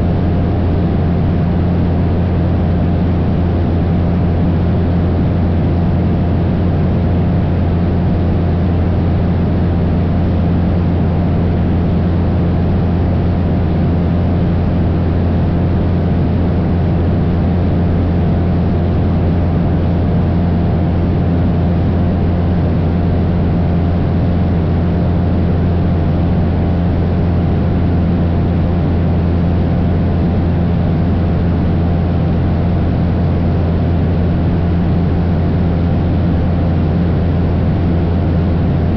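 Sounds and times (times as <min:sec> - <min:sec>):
propeller plane engine droning: 0:00.0 - 0:38.9.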